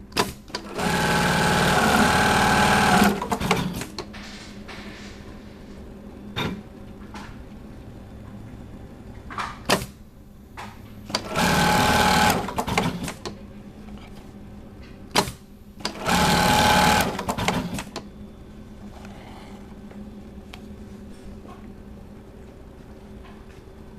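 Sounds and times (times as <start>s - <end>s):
sewing machine running: 0.6s - 3.8s, 11.1s - 13.2s, 15.9s - 17.9s.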